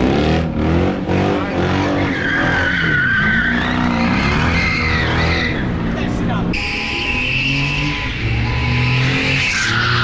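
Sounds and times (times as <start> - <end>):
car engine revving hard: 0.0 - 2.7, 7.0 - 10.0.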